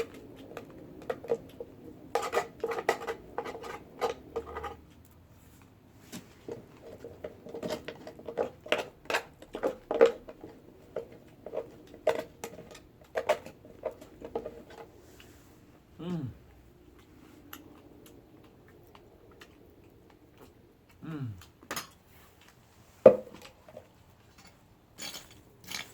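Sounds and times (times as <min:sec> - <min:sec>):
utensils clicking against dishes: 0:25.0 - 0:25.9.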